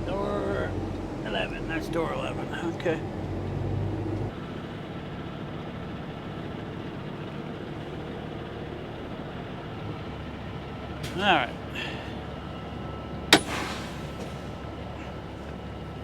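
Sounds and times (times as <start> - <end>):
diesel engine idling low: 4.1 - 16.0.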